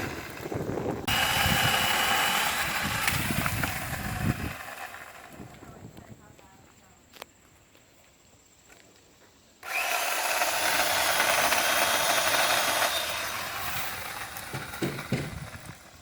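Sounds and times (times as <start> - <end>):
electric chainsaw cutting wood: 0.0 - 5.7, 9.6 - 16.0
knocks: 14.5 - 15.4.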